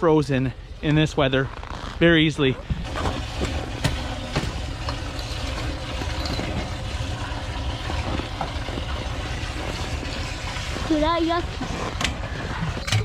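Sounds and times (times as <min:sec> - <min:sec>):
water running into a water bowl: 0:02.8 - 0:13.0.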